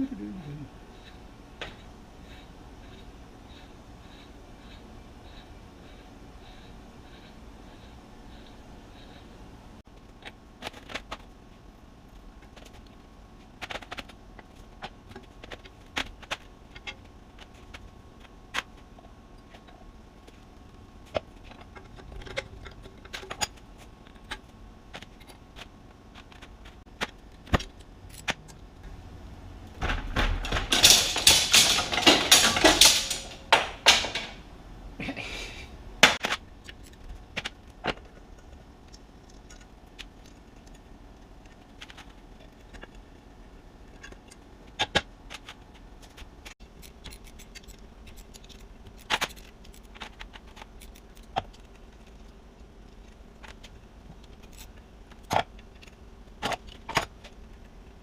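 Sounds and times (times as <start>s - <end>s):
metal rattling and scraping: 29.7s - 34.5s
metal tools clinking: 30.3s - 34.4s.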